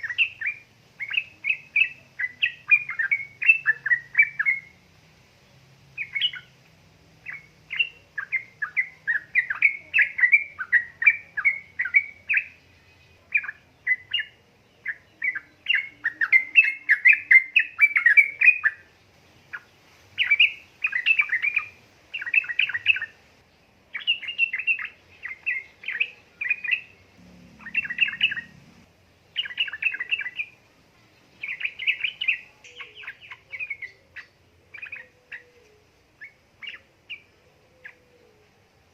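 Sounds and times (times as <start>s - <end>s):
bird chattering chirps: 24.0s - 28.8s.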